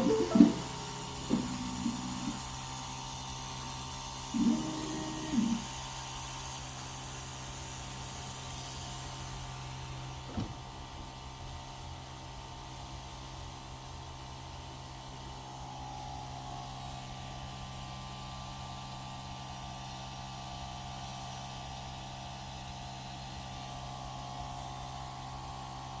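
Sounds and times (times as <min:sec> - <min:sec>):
high whine: 0:00.0 - 0:02.5
machine hum: 0:00.0 - 0:03.0, 0:04.2 - 0:05.7
noise hiss: 0:00.0 - 0:03.0.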